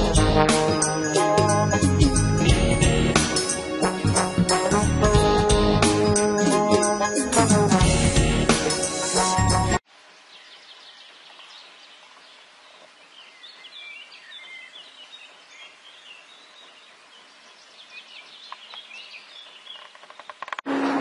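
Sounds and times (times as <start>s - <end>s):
birds chirping: 10.2s - 20.5s.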